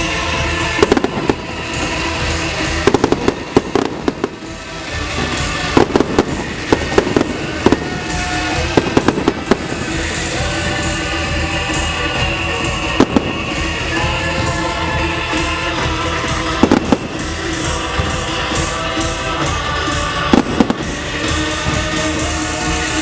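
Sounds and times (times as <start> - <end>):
fireworks bangs and crackles: 0.0 - 23.0
music soundtrack: 0.0 - 23.0.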